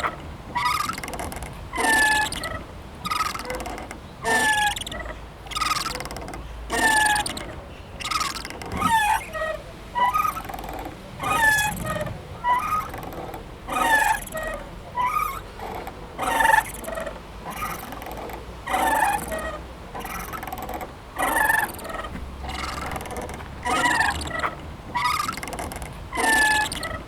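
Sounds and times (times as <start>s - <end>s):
swing creaking and squeaking: 0.0s - 27.0s.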